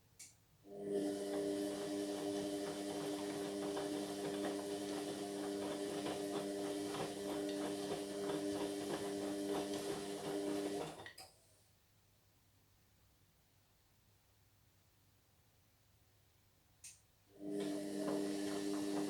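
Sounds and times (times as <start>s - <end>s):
washing machine motor hum: 0.7s - 11.2s, 17.4s - 19.0s.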